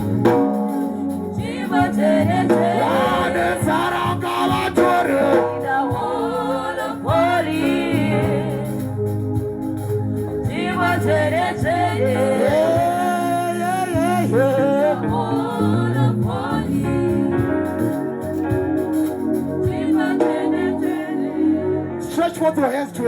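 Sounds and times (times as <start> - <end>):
electronic organ chords: 0.0 - 23.0
person singing: 1.5 - 8.9, 10.6 - 17.7.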